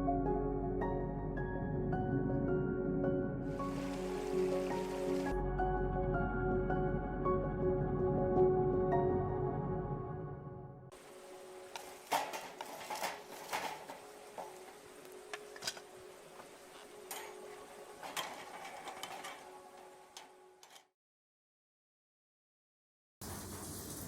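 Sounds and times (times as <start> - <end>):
campfire crackling and popping: 11.6 - 18.0.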